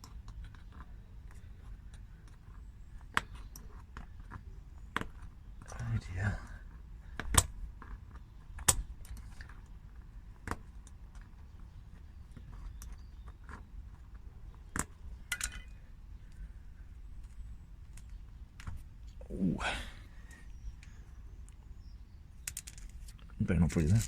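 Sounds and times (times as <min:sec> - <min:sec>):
metallic clinks of small tools: 0:15.3 - 0:15.8.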